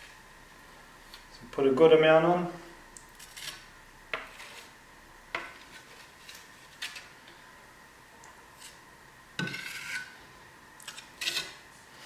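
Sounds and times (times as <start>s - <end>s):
metal spatula scraping filler: 3.2s - 7.2s, 9.4s - 10.3s, 10.9s - 12.0s.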